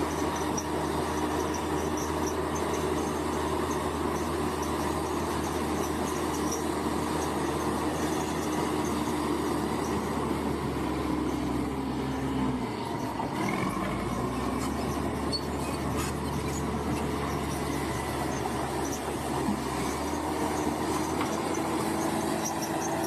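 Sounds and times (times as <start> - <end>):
bulldozer diesel engine running: 0.0 - 23.0.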